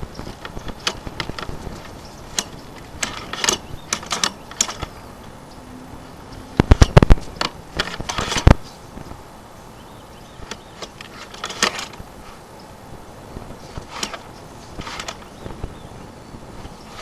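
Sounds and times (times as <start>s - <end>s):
camera cable rattling in pipe: 0.2s - 5.0s, 6.6s - 8.6s.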